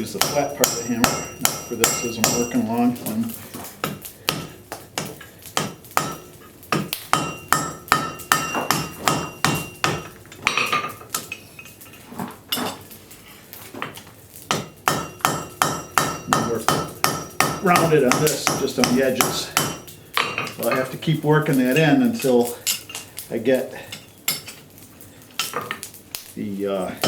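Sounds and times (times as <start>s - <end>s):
hammer striking metal on anvil: 0.1s - 3.1s, 3.8s - 11.3s, 14.5s - 20.9s.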